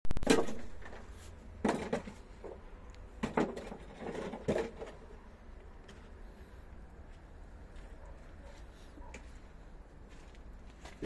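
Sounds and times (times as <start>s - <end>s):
irregular knocks and thuds: 3.2s - 5.0s.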